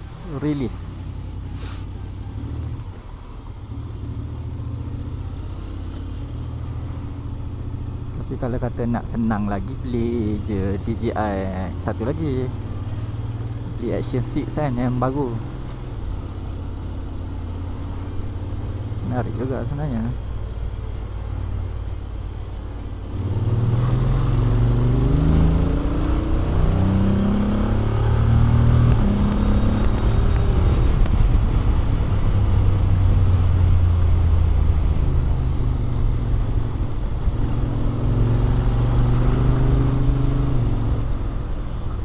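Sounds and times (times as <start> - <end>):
motorcycle engine accelerating: 11.7 - 42.0.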